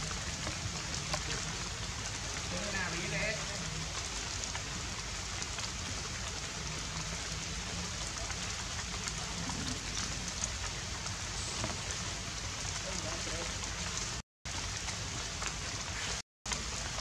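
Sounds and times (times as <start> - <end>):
light rain on foliage: 0.0 - 17.0.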